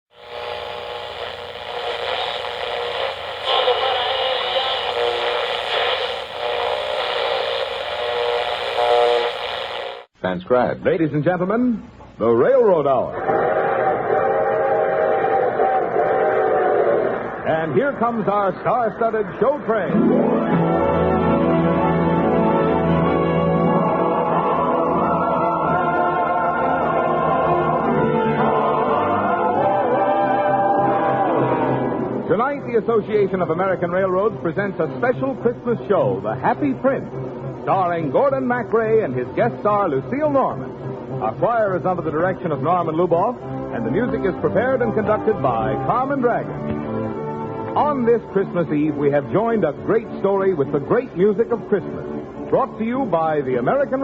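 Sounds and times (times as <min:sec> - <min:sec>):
old radio hiss: 0:00.1 - 0:13.0
choir singing with orchestra: 0:23.4 - 0:32.1.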